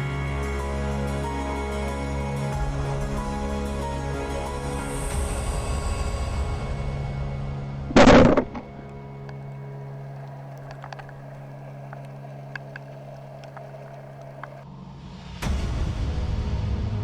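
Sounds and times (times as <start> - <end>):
faint clicks: 7.9 - 14.6
low motor-like drone: 7.9 - 14.6.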